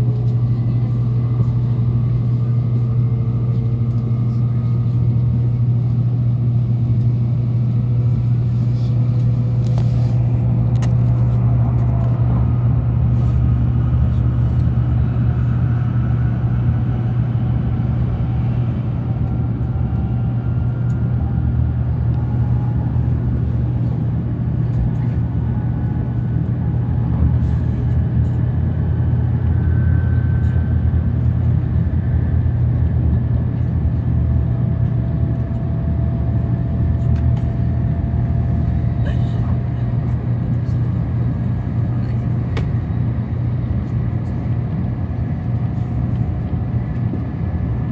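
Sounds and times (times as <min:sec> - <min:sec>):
train rumble and hum: 0:00.0 - 0:47.9
faint rising whine: 0:28.4 - 0:32.7.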